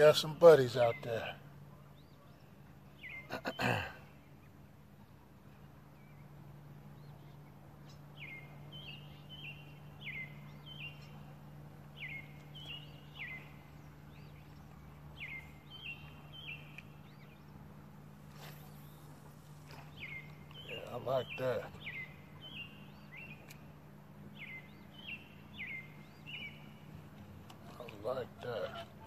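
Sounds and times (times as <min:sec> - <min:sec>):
faint low hum: 0:00.0 - 0:29.0
songbird chirping: 0:00.0 - 0:29.0
fishing rod cast swish: 0:18.2 - 0:20.0.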